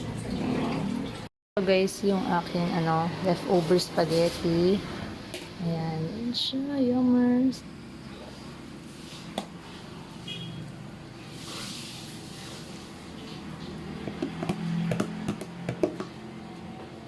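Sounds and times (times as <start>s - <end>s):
dishes clicking and knocking: 14.0s - 16.2s.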